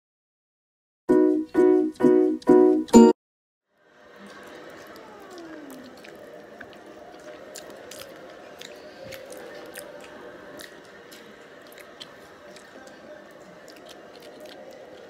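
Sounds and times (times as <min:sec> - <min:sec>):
lip smacking: 0:04.2 - 0:15.0
wet squishy chewing: 0:04.3 - 0:15.0
sharp mouth clicks: 0:05.0 - 0:10.8.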